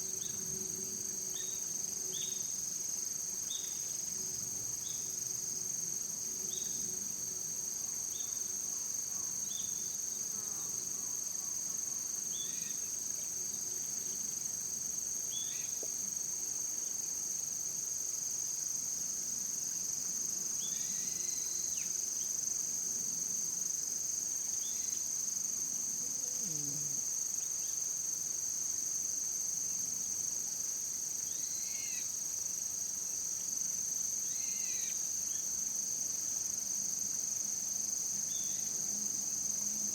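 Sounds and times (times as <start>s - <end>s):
insects trilling: 23.5s - 39.9s.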